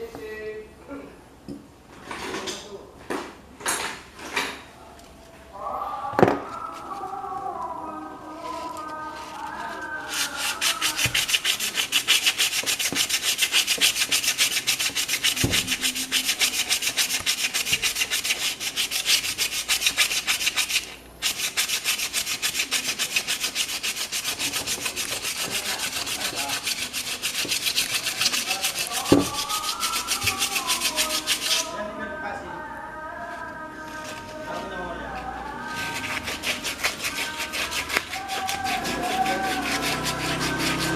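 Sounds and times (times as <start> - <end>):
hand sanding strokes: 8.2 - 31.8, 35.5 - 40.9.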